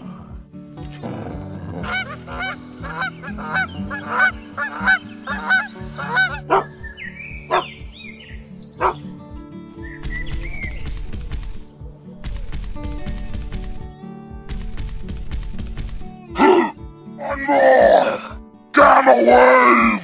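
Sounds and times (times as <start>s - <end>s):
soft background music: 0.0s - 20.0s
geese honking: 1.8s - 6.8s.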